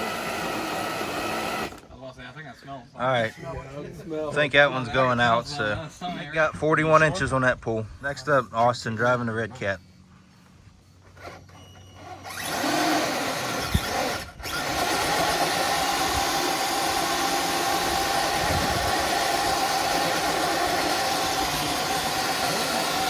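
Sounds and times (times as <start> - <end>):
electric motor and gears whining: 0.0 - 1.9, 10.9 - 23.0.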